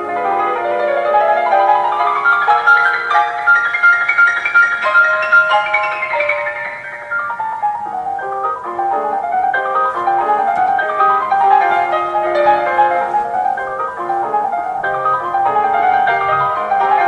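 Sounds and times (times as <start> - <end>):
classical piano music: 0.0 - 17.0.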